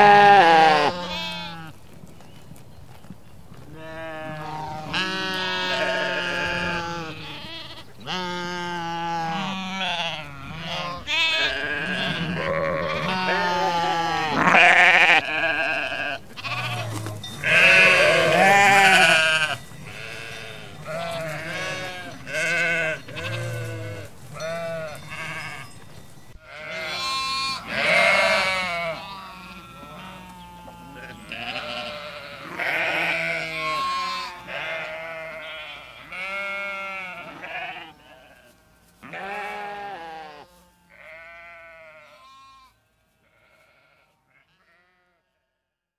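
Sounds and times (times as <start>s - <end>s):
sheep bleating: 0.0s - 1.8s, 3.7s - 25.8s, 26.4s - 45.4s.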